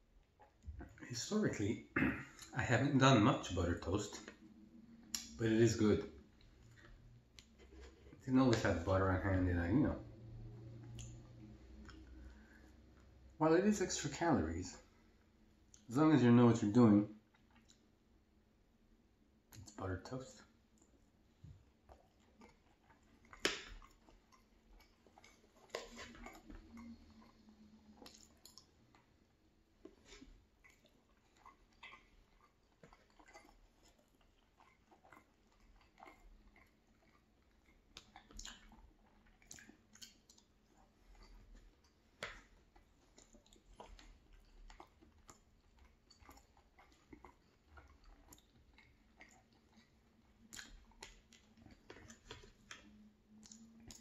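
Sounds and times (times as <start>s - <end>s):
chewing fried potatoes: 0.0s - 54.0s
wet mouth sounds: 29.9s - 54.0s.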